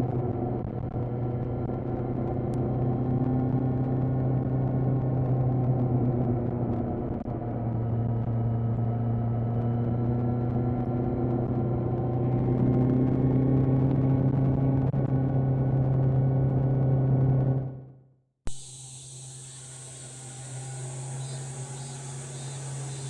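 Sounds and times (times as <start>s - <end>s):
motorcycle engine running: 18.5s - 23.0s.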